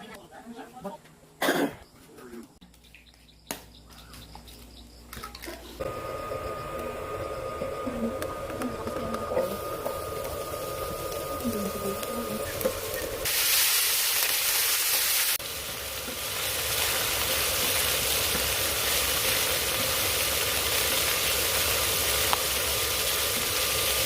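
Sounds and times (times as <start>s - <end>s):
vegetables sizzling in oil: 5.8s - 24.0s.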